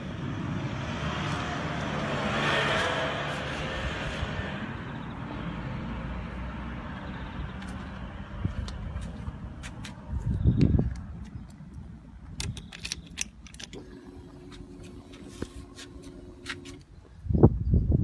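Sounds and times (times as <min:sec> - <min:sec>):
keys or switches clicking: 0:12.3 - 0:13.8
fuel pump electric hum: 0:13.6 - 0:17.2
motorcycle engine: 0:13.8 - 0:16.8.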